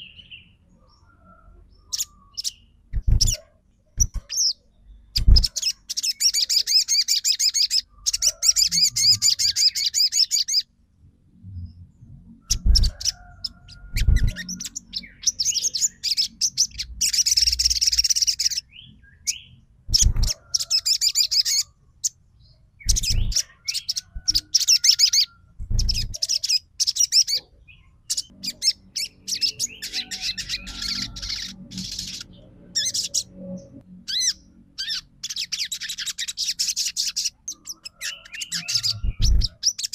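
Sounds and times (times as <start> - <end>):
bird singing high trills: 4.0 - 10.7, 12.4 - 21.8, 22.8 - 39.9.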